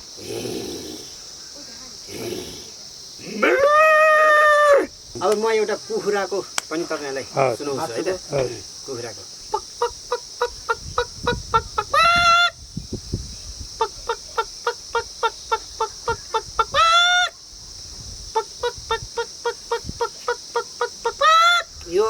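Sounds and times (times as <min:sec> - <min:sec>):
crickets chirring: 0:00.0 - 0:22.0
man imitating hen clucking: 0:09.5 - 0:12.6, 0:13.8 - 0:17.3, 0:18.4 - 0:22.0.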